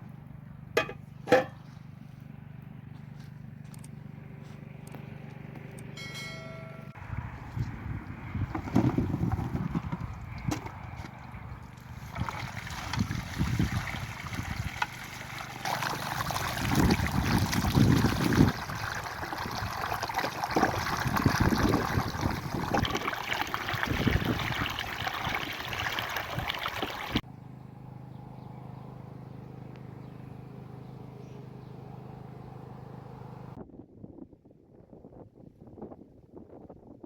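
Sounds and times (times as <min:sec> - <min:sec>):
water trickling: 0:11.8 - 0:27.2.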